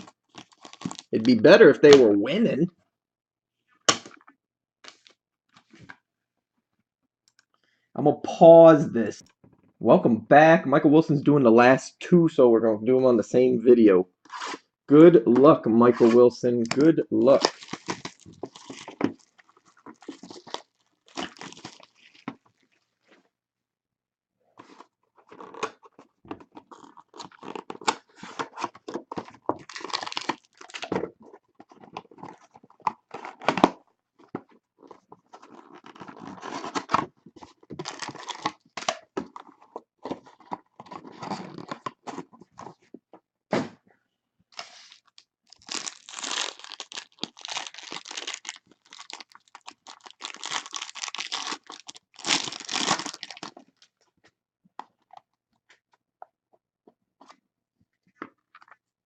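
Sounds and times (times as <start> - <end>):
wrappers tearing and crinkling: 0.3 - 1.2, 17.3 - 22.3, 26.6 - 30.9, 35.3 - 37.0, 37.8 - 39.0, 44.6 - 53.8.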